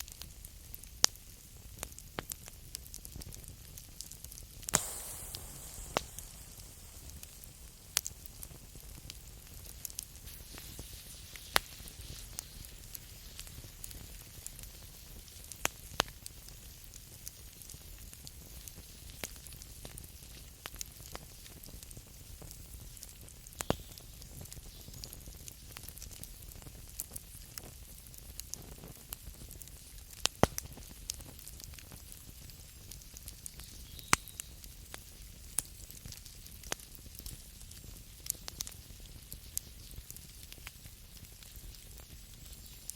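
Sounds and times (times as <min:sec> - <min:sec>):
campfire crackling and hissing: 0:00.0 - 0:42.9
sharp pops from burning wood: 0:00.0 - 0:42.9
loud fire pops: 0:04.7 - 0:14.2.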